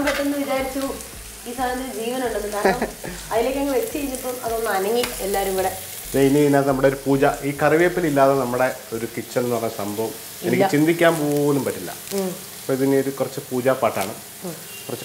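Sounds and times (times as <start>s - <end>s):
woman speaking: 0.0s - 5.8s, 10.4s - 10.8s, 12.1s - 12.4s, 14.4s - 14.6s
prawns sizzling in a pan: 0.0s - 15.0s
man speaking: 6.1s - 12.0s.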